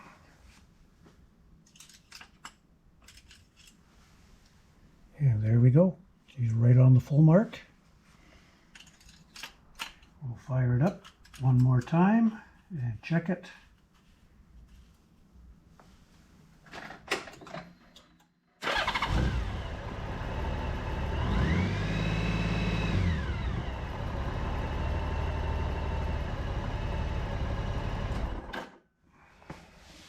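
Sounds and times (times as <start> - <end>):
motorcycle engine idling and revving: 18.6 - 28.5.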